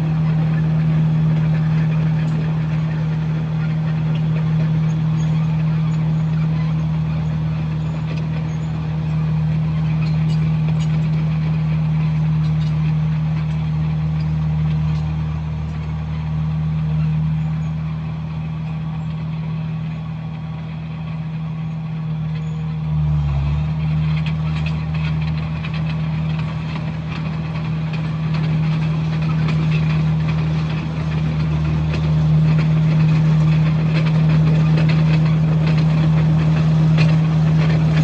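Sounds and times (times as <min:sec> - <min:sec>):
bulldozer diesel engine running: 0:00.0 - 0:38.0
clatter of knocks and scraping: 0:03.6 - 0:16.0, 0:23.8 - 0:38.0.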